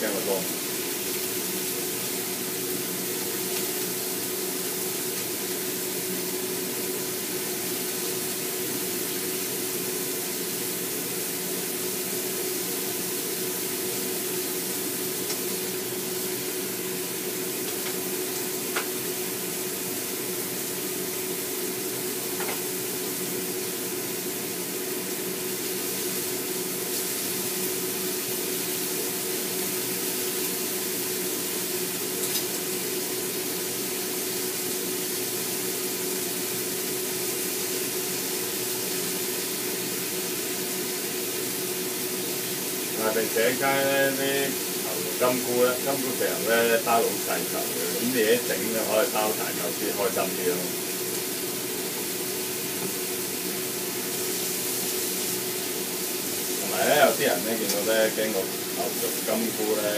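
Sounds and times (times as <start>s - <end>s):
food sizzling in oil: 0.0s - 59.9s
steady hum: 37.9s - 59.9s.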